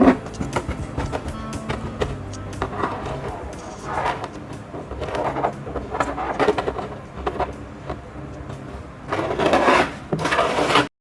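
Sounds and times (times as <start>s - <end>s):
scraping in sand: 9.1s - 10.9s.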